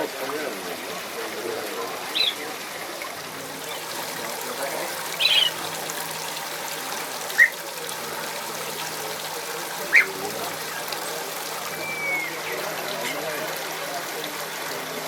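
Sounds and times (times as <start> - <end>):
water trickling: 0.0 - 15.0
bird calls: 2.1 - 2.4, 3.5 - 13.2.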